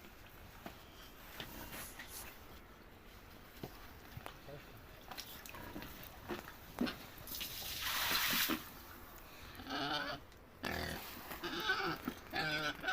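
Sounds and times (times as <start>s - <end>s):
hiss of sprayed water: 7.3s - 8.8s.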